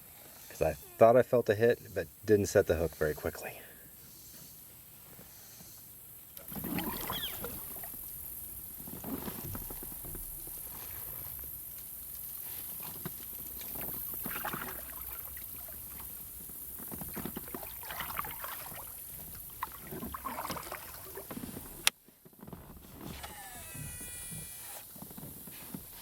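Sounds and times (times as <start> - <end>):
water splashing around a kayak: 6.4 - 22.0.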